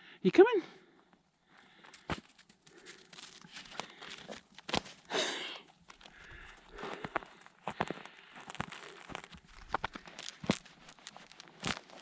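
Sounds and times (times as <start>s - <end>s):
footsteps crunching through snow: 2.0s - 5.3s, 6.1s - 12.0s.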